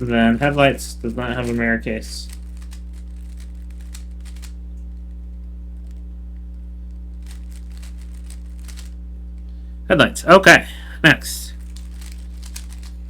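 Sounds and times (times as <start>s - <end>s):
electrical hum: 0.0s - 13.0s
plastic cube clicking: 2.3s - 4.6s, 7.2s - 9.0s, 11.7s - 12.9s.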